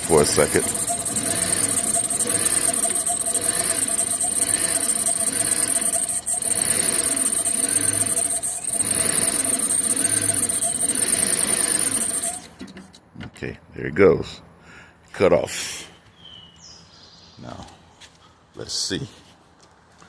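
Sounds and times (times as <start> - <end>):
car engine struggling to idle: 0.0 - 12.5.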